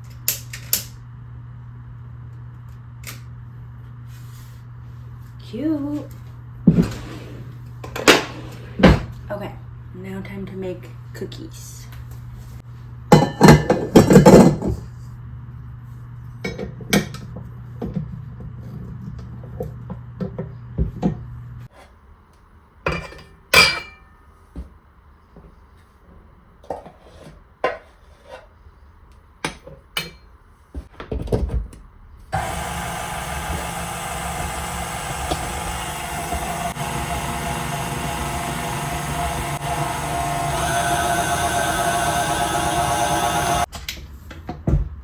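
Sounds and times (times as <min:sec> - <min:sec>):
dishes and utensils clinking: 0:13.2 - 0:14.4
electric mixer motor whine: 0:32.4 - 0:43.7.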